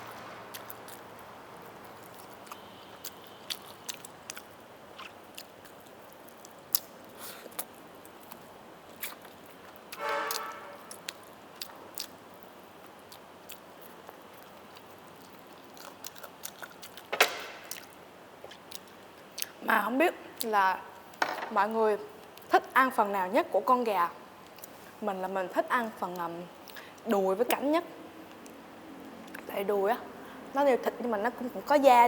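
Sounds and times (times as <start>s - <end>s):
food crunching: 0.5s - 19.5s
chewing with mouth clicks: 0.5s - 19.6s, 26.1s - 27.6s, 28.2s - 29.5s.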